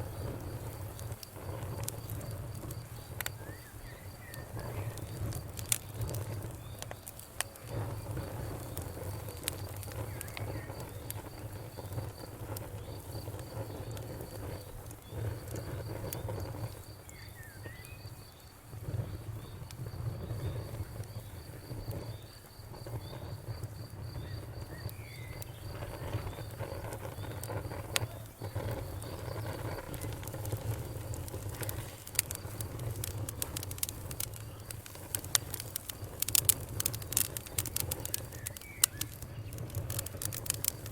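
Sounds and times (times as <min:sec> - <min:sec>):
insect chirping: 0:00.0 - 0:40.9
wood fire crackling: 0:00.0 - 0:40.9
faint bird chirp: 0:03.0 - 0:05.1, 0:17.0 - 0:18.5, 0:24.1 - 0:29.4, 0:37.4 - 0:40.1.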